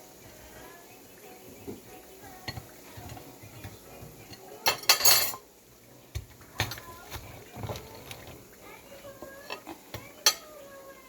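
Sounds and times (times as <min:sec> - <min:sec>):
kitchen utensils clinking: 0:01.5 - 0:05.5, 0:06.1 - 0:10.7.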